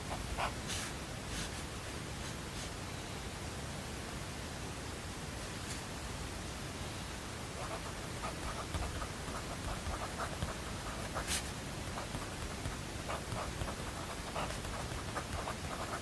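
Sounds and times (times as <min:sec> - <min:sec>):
white noise hiss: 0:00.0 - 0:16.0
pen writing on paper: 0:07.6 - 0:16.0.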